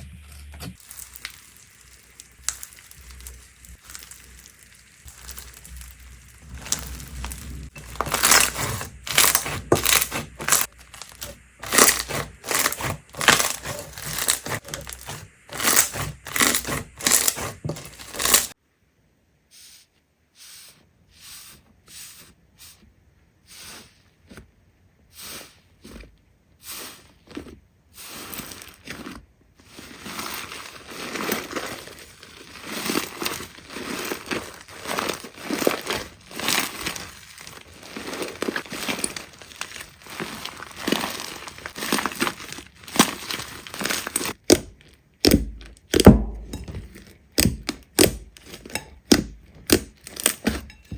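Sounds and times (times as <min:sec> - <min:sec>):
slime crackling and popping: 0:00.8 - 0:18.6, 0:28.0 - 0:50.8.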